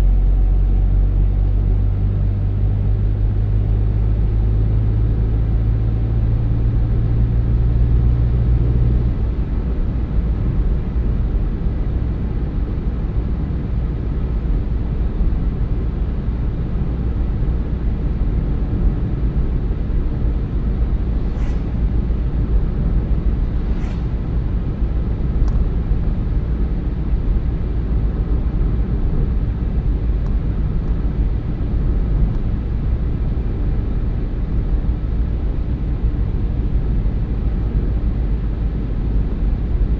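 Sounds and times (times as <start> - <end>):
car road and tyre rumble: 0.0 - 39.9
low hum: 19.9 - 27.3.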